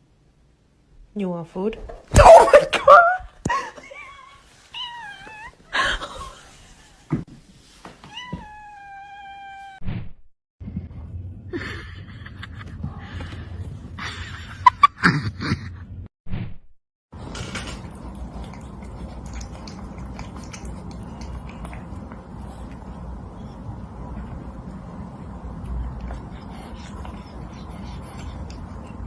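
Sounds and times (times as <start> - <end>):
cat meowing: 4.7 - 5.6, 8.1 - 9.8
low steady hum: 17.2 - 29.0.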